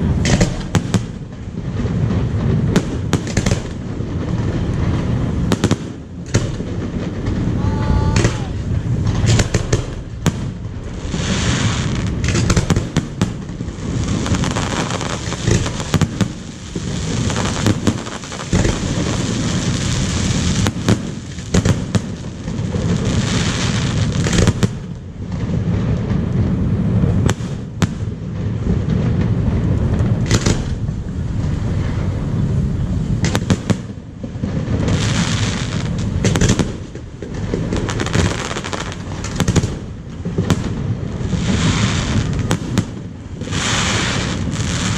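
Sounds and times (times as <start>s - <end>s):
firework crackling: 0.0s - 44.9s.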